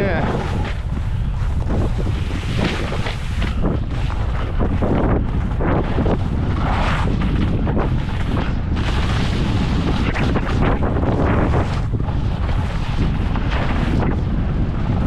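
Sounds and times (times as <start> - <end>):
wind buffeting microphone: 0.0 - 15.0
skis scraping through snow: 0.1 - 15.0.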